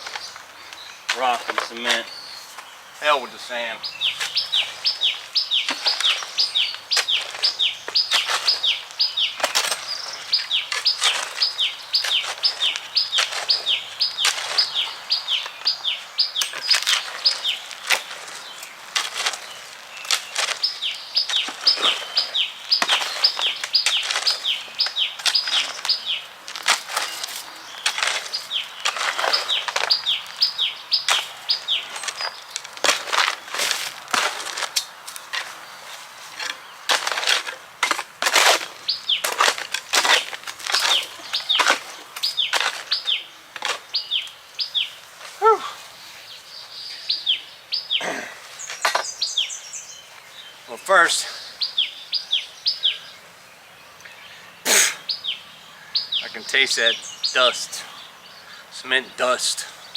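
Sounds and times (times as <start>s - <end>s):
knocks and scrapes of rock work: 5.6s - 14.8s, 16.4s - 30.2s, 31.0s - 35.6s, 36.2s - 44.0s, 48.0s - 49.3s.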